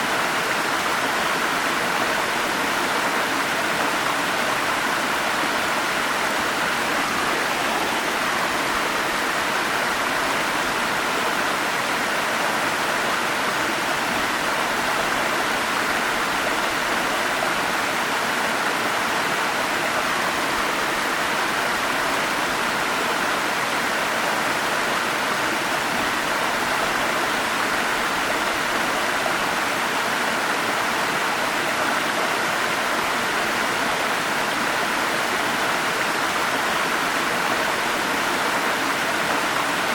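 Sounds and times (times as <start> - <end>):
stream rushing over small falls: 0.0 - 39.9.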